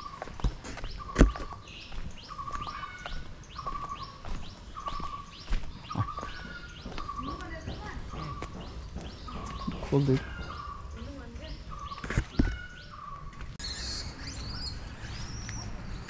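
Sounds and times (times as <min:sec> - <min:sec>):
bird calling: 0:00.0 - 0:16.0
knocks: 0:06.9 - 0:10.8.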